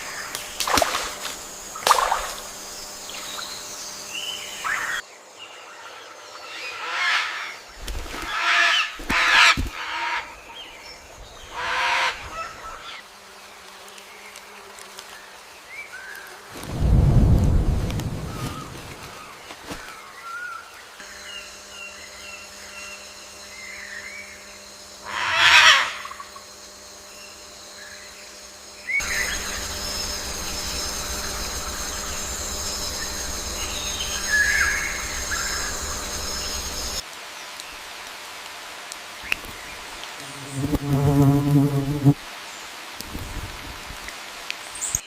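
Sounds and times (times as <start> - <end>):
low rumble: 16.6 - 19.0
scattered bird calls: 28.8 - 37.0
steady high whine: 28.8 - 37.0.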